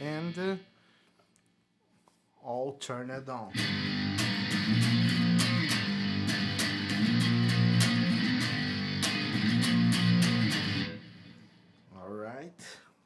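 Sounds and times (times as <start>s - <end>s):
strummed electric guitar chords: 3.5s - 11.6s.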